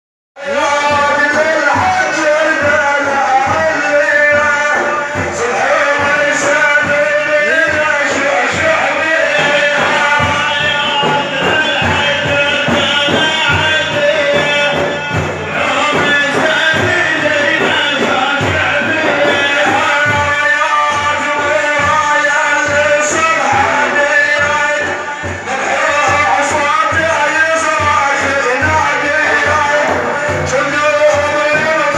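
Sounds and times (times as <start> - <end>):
devotional singing: 0.4 - 31.9
hand drums beating: 0.4 - 31.9.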